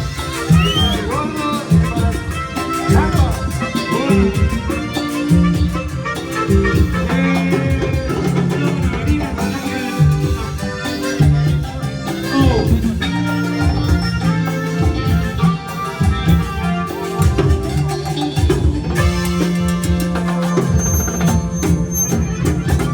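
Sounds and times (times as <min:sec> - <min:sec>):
band playing latin dance music: 0:00.0 - 0:22.9
bass line: 0:00.0 - 0:22.9
drums beating: 0:00.0 - 0:22.9.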